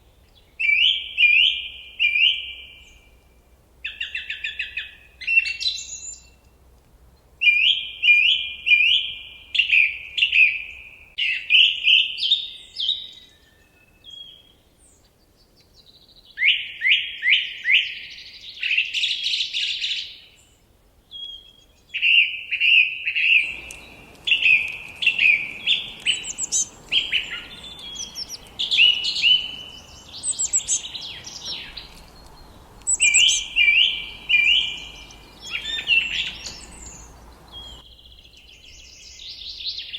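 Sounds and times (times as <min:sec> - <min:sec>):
songbird singing: 0:00.0 - 0:03.3, 0:21.2 - 0:39.9
steady background hiss: 0:23.4 - 0:37.8.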